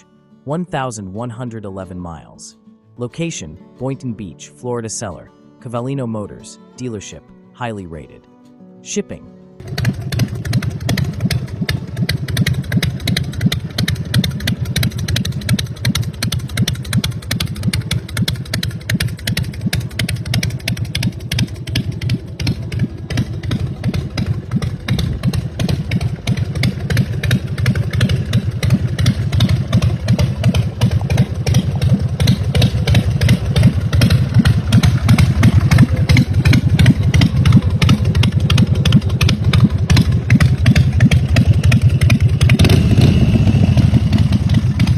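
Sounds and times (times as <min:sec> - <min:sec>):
v-twin motorcycle engine rumbling: 0:09.6 - 0:44.9.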